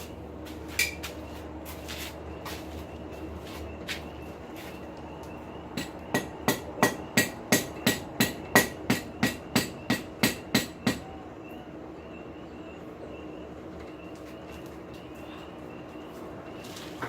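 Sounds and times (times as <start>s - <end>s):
hammer striking steel on anvil: 5.8s - 11.2s.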